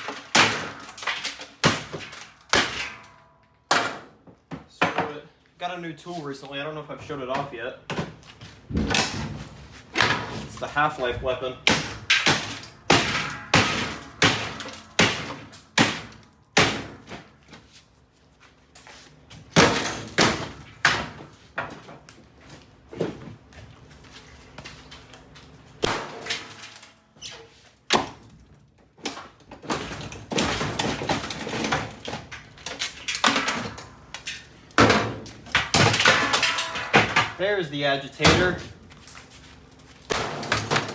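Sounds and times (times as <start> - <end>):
crowbar striking metal: 11.7 - 17.0.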